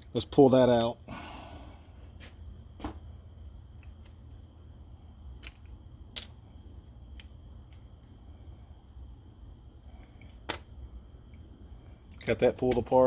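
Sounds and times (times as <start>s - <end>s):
steady low hum: 0.0s - 13.0s
carburetor parts clicking: 12.2s - 13.0s.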